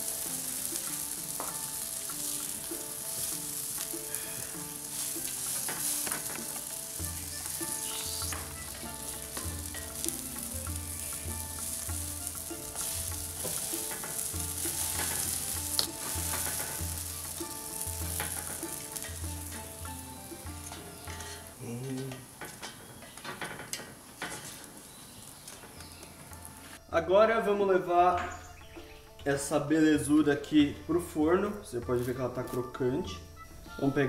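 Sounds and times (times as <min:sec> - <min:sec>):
bread sizzling on griddle: 0:00.0 - 0:26.8
metal spatula scraping and tapping: 0:00.6 - 0:24.8.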